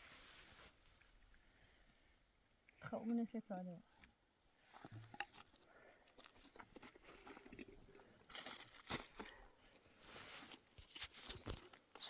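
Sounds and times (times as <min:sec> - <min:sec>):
crunching of dry brush and twigs: 0:06.2 - 0:09.6.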